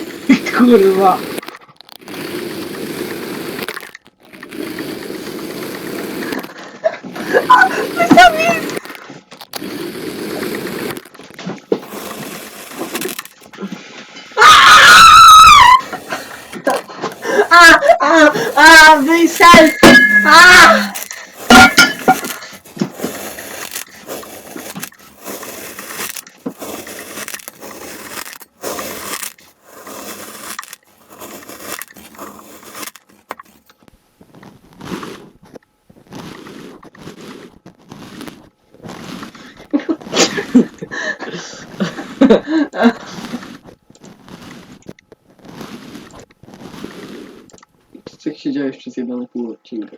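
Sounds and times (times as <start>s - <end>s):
sand crunching and crackling: 0.0s - 48.2s.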